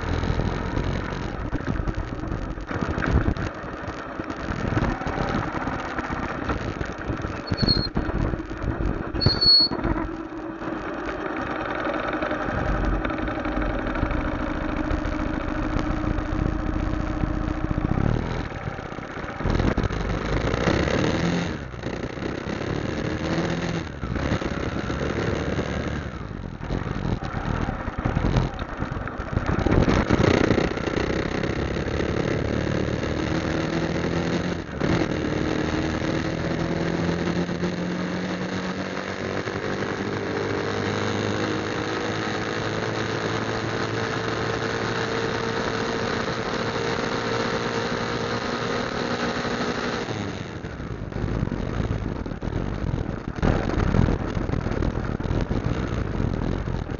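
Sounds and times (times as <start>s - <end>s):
wind noise: 0.0s - 10.2s, 15.0s - 38.0s, 50.2s - 56.9s
motorcycle engine running: 0.0s - 56.9s.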